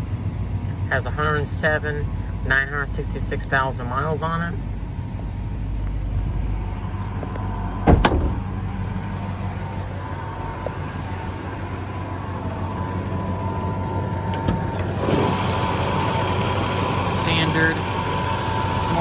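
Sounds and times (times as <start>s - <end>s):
car engine idling: 0.0s - 19.0s
sharp knocks: 7.8s - 8.5s.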